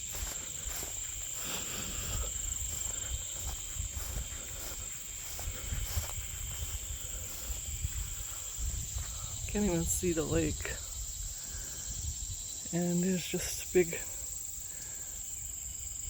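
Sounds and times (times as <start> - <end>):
insects buzzing: 0.0 - 16.0.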